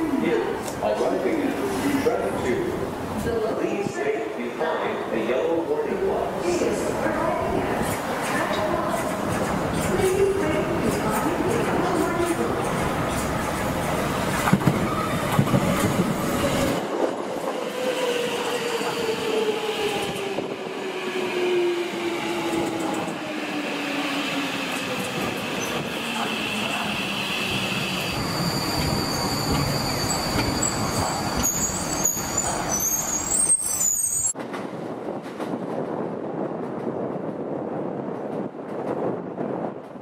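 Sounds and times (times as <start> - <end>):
wheel and rail noise: 6.5 - 37.1
train braking: 17.4 - 34.4
brake and wheel squeals: 26.6 - 34.3.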